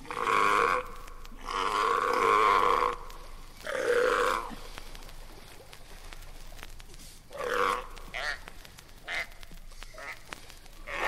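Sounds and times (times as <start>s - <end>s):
large animal calling: 0.0s - 4.6s, 7.3s - 8.5s.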